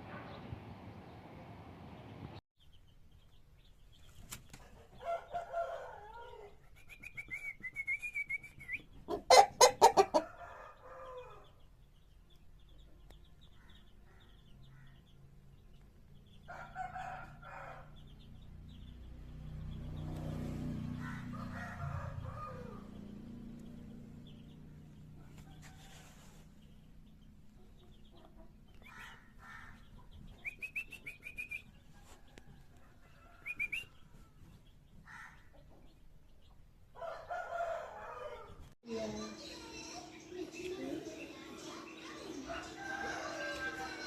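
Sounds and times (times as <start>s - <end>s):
wing flapping: 4.1s - 4.8s
chicken calling and clucking: 4.1s - 11.6s, 40.4s - 44.0s.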